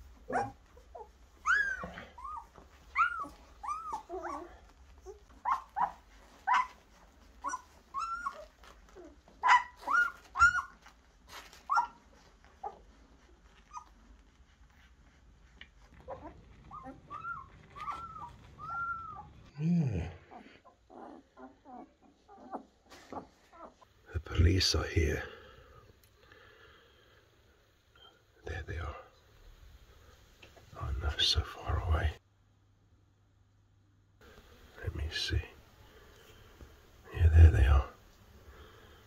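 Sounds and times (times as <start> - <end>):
puppies whimpering and yelping: 0.1 - 14.3, 15.8 - 19.5.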